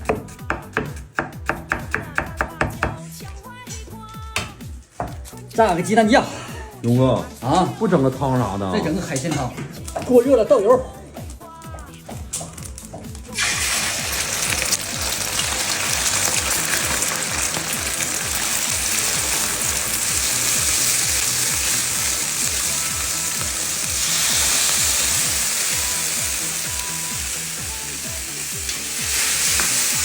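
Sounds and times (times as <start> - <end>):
background music with beat: 0.0 - 30.0
food sizzling in hot oil: 13.2 - 30.0.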